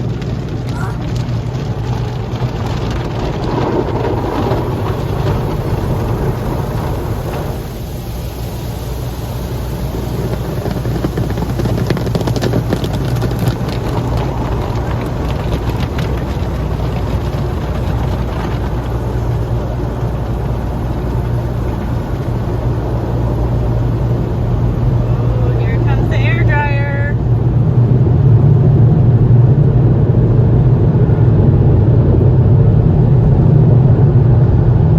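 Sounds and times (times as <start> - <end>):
car wash machinery drone: 0.0 - 34.9
rapid tapping on car body: 10.3 - 22.4.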